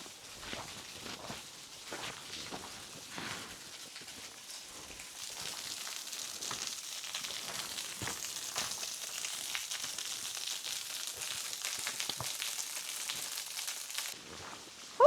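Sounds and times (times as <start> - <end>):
footsteps on trail: 0.4 - 3.6
small waterfall splashing: 5.0 - 14.2.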